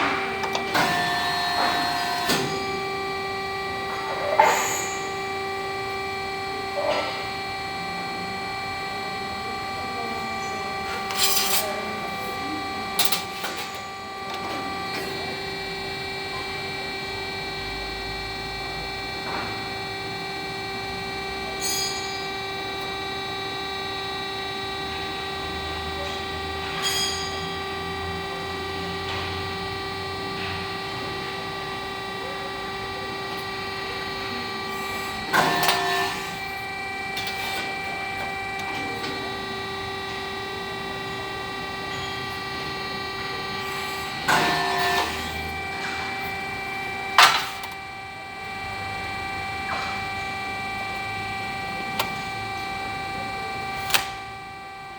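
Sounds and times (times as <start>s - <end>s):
machine clunks: 0.0s - 2.7s, 35.2s - 36.4s, 47.2s - 47.8s
machine hum: 0.0s - 54.9s.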